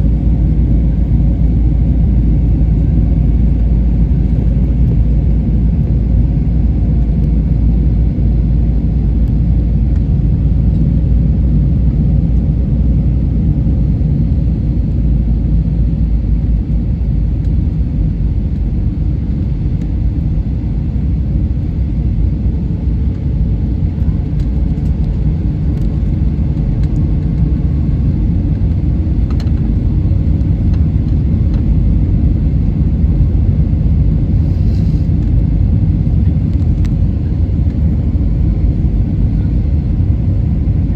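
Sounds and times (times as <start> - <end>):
airliner engines rumbling: 0.0 - 40.9
rushing air: 34.2 - 35.3.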